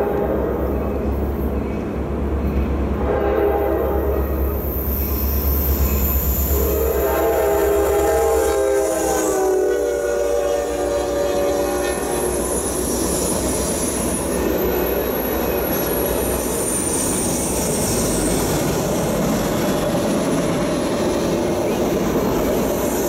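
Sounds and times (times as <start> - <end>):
train wheels rumbling on rail: 0.0 - 23.0
high wheel squeal: 11.1 - 18.8.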